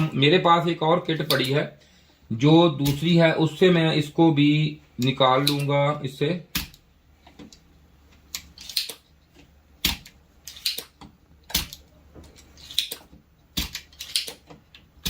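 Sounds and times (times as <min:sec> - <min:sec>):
desoldering pump snapping: 0:01.2 - 0:01.6, 0:02.8 - 0:03.2, 0:05.0 - 0:05.7, 0:06.5 - 0:07.6, 0:08.2 - 0:15.0.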